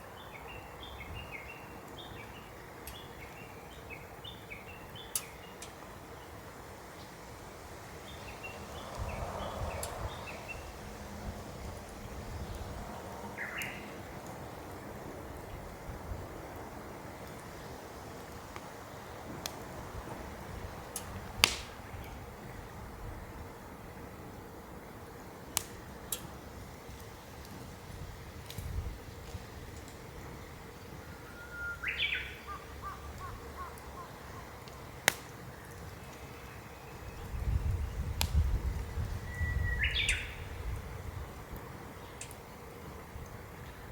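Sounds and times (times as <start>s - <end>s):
wood fire crackling: 1.7s - 43.9s
low wind rumble: 5.8s - 43.9s
bird calling: 13.3s - 14.0s, 31.0s - 35.0s.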